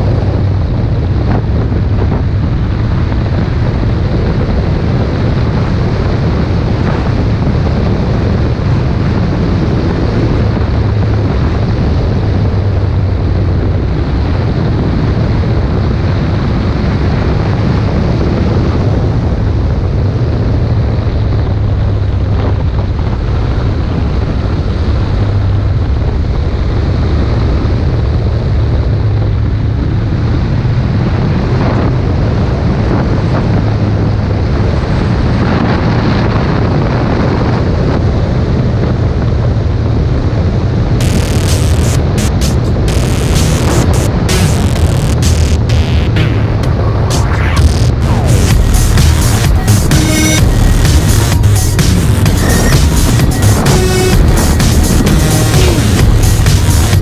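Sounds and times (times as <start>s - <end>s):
wind rushing over microphone: 0.0s - 57.0s
motorcycle engine running: 41.0s - 57.0s.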